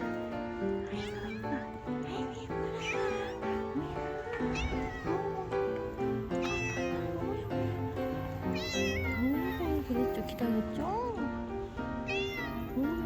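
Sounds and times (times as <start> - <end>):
cat meowing: 0.0 - 11.2, 12.0 - 13.0
background music: 0.0 - 13.0.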